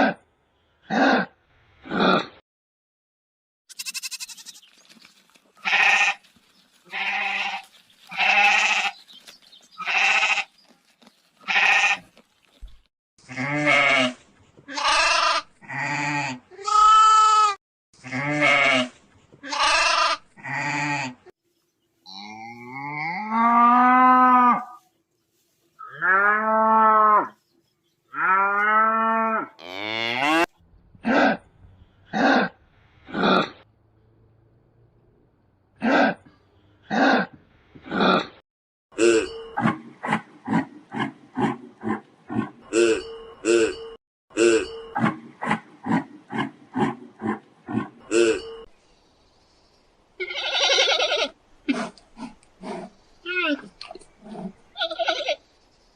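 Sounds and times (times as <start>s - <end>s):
goats bleating: 3.7s - 4.7s, 5.6s - 6.2s, 6.8s - 9.0s, 9.8s - 10.6s, 11.4s - 12.2s, 13.3s - 21.3s, 50.2s - 51.4s, 54.8s - 55.4s.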